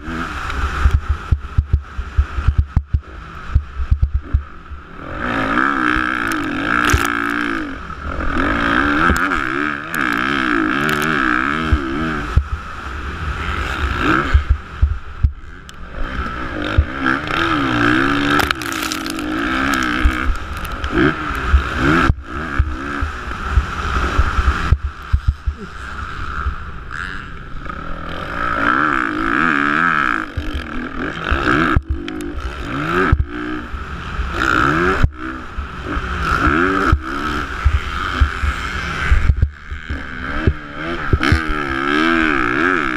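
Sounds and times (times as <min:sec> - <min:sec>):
motocross bike engines revving: 0:00.0 - 0:42.9
low thumps at the microphone: 0:00.9 - 0:04.5, 0:14.3 - 0:15.4, 0:23.6 - 0:25.6.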